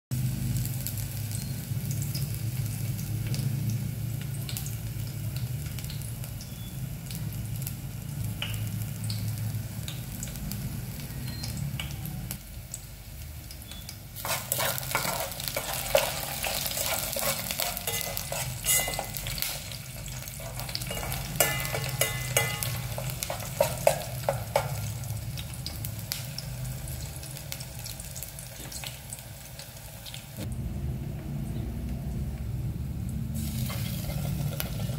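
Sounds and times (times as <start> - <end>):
garlic sizzling in oil: 0.1 - 30.5, 32.9 - 34.9
spoon scraping a pot: 14.2 - 24.8
steady low hum: 30.4 - 33.7.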